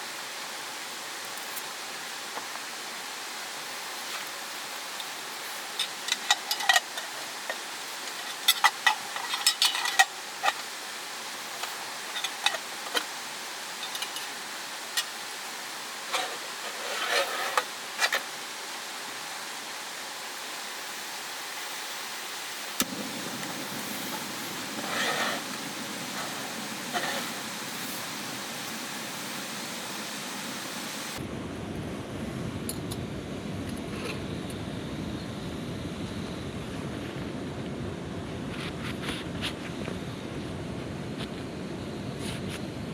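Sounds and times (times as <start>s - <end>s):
mountain stream rushing: 10.1s - 31.2s.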